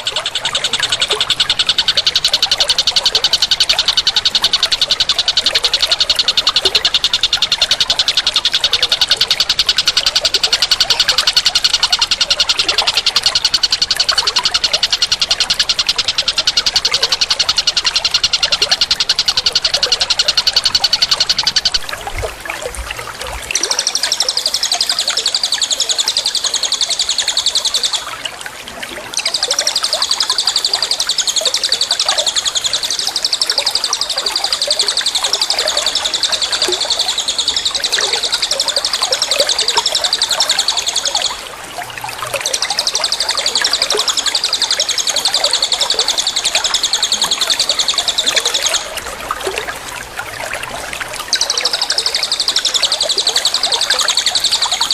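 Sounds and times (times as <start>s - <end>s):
bird singing high trills: 0.0s - 21.8s, 42.4s - 49.1s, 51.2s - 54.9s
water trickling: 0.0s - 54.9s.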